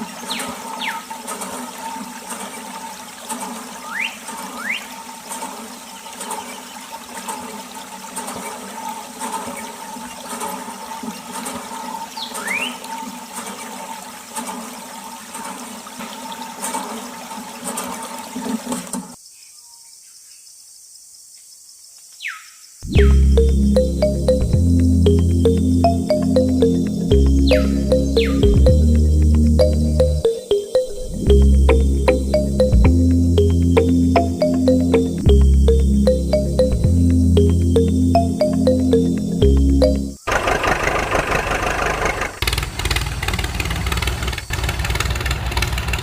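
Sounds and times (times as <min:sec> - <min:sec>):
water running and splashing: 0:00.0 - 0:19.2.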